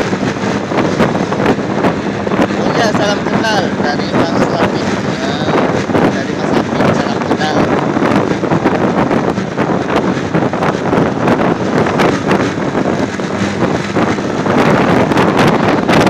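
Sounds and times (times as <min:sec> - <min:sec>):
vehicle and road noise: 0:00.0 - 0:16.0
wind buffeting microphone: 0:00.0 - 0:16.0.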